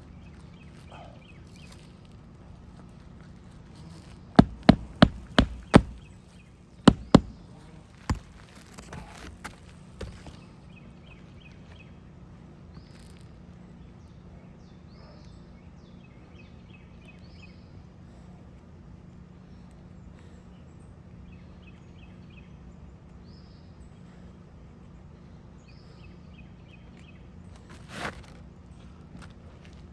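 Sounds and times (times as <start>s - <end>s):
birds chirping: 0.0s - 29.9s
hammer driving nails: 4.4s - 6.1s, 6.9s - 9.3s.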